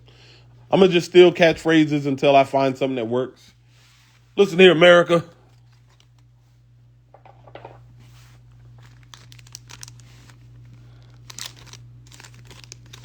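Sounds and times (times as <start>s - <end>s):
steady low hum: 0.0s - 13.0s
foil wrapper crinkling: 5.4s - 6.4s, 8.2s - 13.0s.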